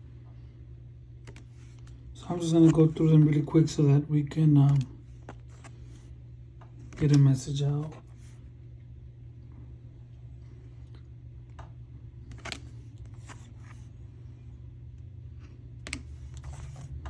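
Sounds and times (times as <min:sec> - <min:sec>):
steady low hum: 0:00.0 - 0:17.0
cards clicking and tapping: 0:01.2 - 0:03.1, 0:06.7 - 0:08.1, 0:12.2 - 0:13.8, 0:15.8 - 0:16.9.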